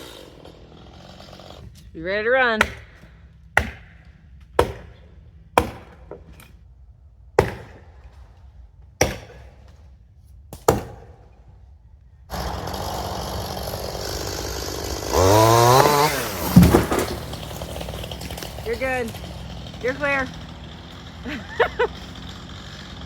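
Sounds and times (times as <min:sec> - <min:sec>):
chainsaw running: 0:00.0 - 0:01.9, 0:12.3 - 0:23.0
axe blows into tree: 0:15.4 - 0:18.6.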